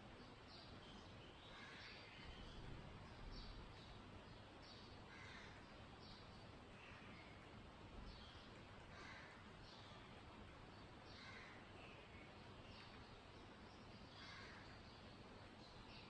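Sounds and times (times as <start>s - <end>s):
low room hiss: 0.0s - 16.0s
faint bird chirps: 0.1s - 10.2s.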